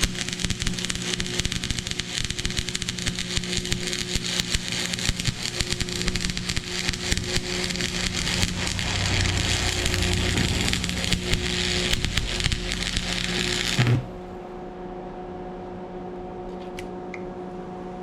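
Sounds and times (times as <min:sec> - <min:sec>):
welding arc crackling: 0:00.0 - 0:14.5
low hum: 0:05.4 - 0:16.4.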